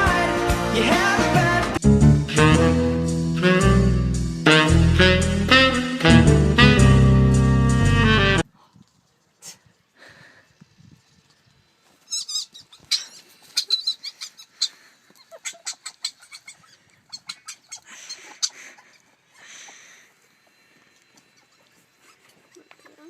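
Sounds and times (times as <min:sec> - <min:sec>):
dog whining and yelping: 0:12.1 - 0:19.2.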